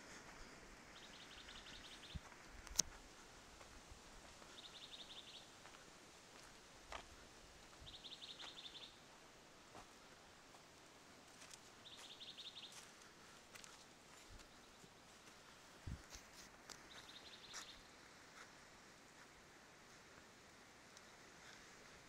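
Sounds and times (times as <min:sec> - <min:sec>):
faint outdoor background: 0:00.0 - 0:22.0
songbird trilling: 0:01.0 - 0:02.2, 0:04.5 - 0:05.5, 0:07.8 - 0:09.0, 0:11.8 - 0:12.8, 0:16.9 - 0:17.8.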